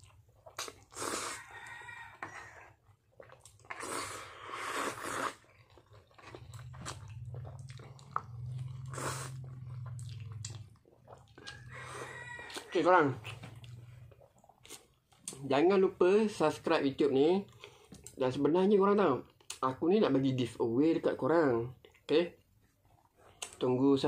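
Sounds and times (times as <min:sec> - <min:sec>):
person chewing noodles: 0:00.0 - 0:15.5, 0:21.8 - 0:23.6
low steady hum: 0:05.6 - 0:12.0.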